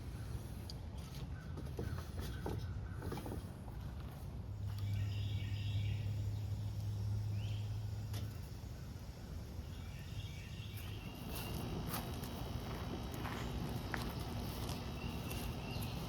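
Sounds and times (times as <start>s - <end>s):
steady low hum: 0.0s - 16.0s
bird chirps: 4.7s - 7.8s, 9.6s - 11.7s, 14.9s - 16.0s.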